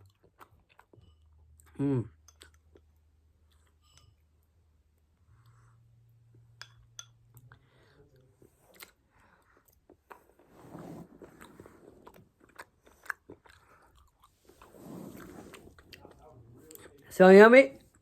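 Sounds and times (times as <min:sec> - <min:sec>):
person chewing noodles: 0:00.0 - 0:04.0, 0:07.4 - 0:16.9.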